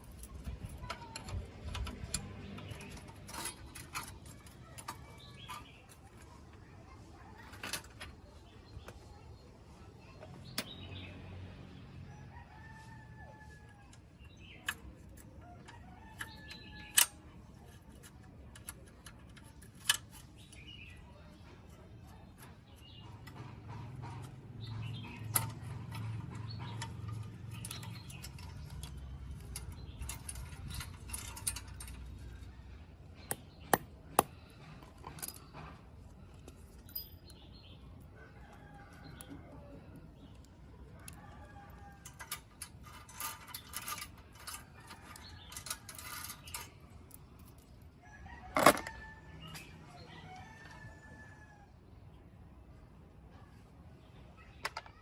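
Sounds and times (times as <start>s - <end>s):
sharp clicks and knocks: 33.2s - 35.8s.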